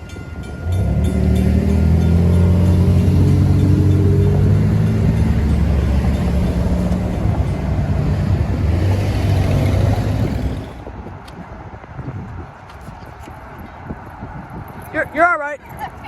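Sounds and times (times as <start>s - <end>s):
diesel engine drone: 0.0s - 11.2s.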